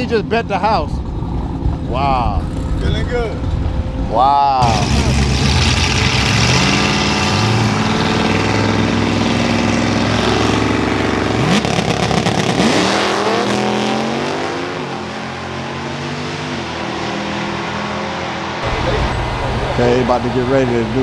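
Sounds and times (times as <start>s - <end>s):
car engine revving: 4.6s - 21.0s.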